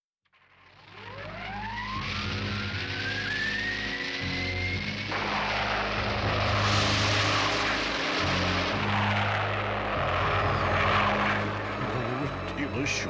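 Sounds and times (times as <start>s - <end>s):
rushing whoosh: 5.1s - 12.0s.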